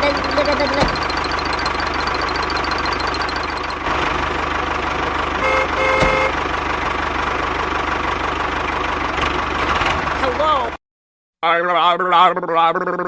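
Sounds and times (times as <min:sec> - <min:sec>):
small motor running: 0:00.0 - 0:03.8
two-part horn toot: 0:05.4 - 0:06.4.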